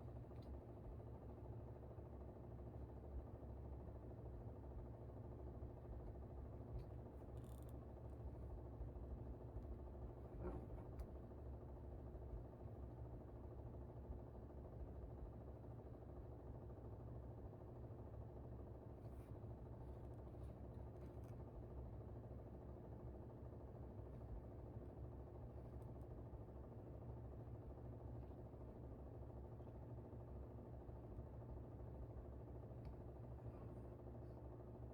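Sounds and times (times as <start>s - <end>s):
air conditioner humming: 16.6s - 34.9s.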